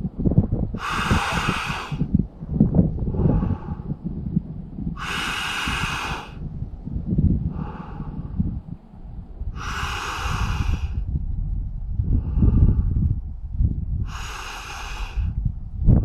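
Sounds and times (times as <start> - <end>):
low rumble: 0.0 - 16.0
man breathing deeply: 0.8 - 2.2, 3.0 - 4.2, 4.9 - 8.7, 9.5 - 11.1, 12.0 - 13.2, 14.0 - 15.4.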